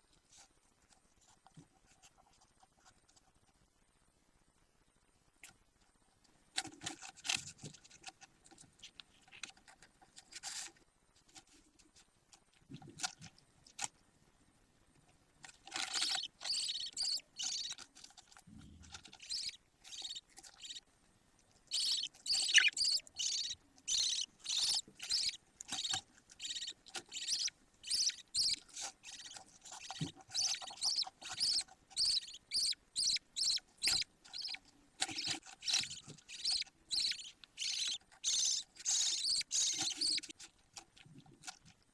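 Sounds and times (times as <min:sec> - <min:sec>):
budgerigar chicks chirping: 0:15.8 - 0:17.8, 0:19.0 - 0:20.8, 0:21.7 - 0:40.3.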